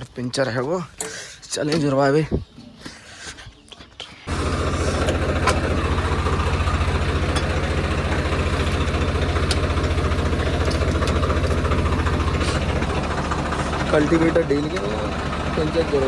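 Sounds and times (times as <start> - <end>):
tractor engine idling: 4.3 - 16.0.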